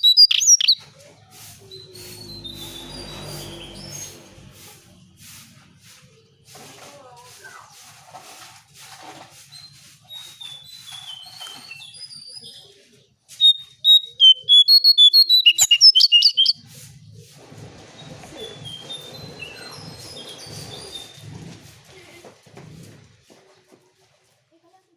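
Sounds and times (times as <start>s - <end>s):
songbird whistling: 0.0s - 0.8s, 13.4s - 16.6s.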